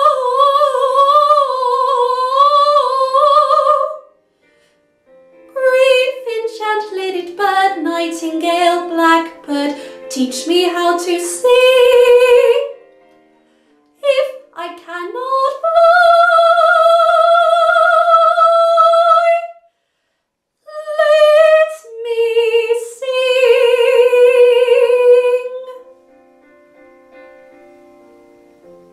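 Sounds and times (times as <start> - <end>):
woman singing: 0.0 - 4.1, 5.5 - 12.8, 14.0 - 19.6, 20.7 - 25.8
quiet piano accompaniment: 0.0 - 19.6, 20.6 - 28.9.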